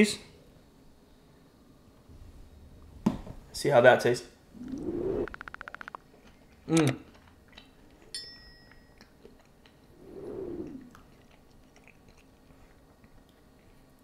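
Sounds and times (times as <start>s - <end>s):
crunchy chewing: 5.6s - 8.2s, 8.9s - 14.0s
ringing clink: 8.1s - 9.0s.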